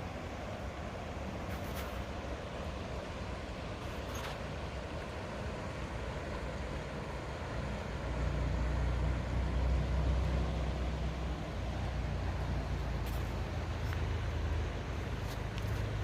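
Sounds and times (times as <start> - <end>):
large engine droning past: 7.6 - 15.0.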